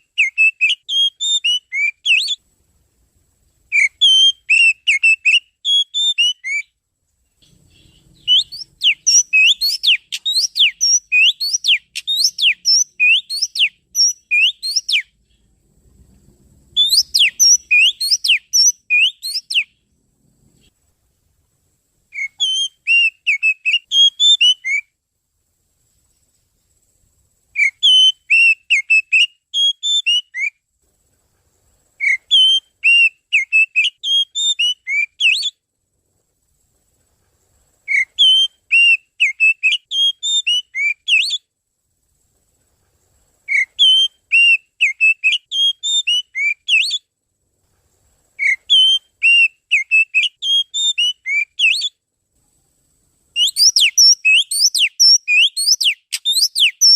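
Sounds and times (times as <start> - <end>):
magpie-robin whistled song: 0.0 - 2.4, 3.7 - 6.8, 7.4 - 15.4, 16.7 - 19.8, 22.1 - 25.0, 27.5 - 30.6, 32.0 - 35.6, 37.9 - 41.5, 43.5 - 47.1, 48.4 - 52.0, 53.3 - 56.9.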